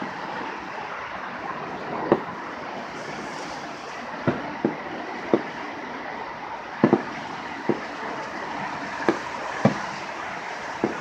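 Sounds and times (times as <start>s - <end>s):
steady background hiss: 0.0s - 11.0s
distant fireworks popping: 1.6s - 5.8s, 6.7s - 11.0s.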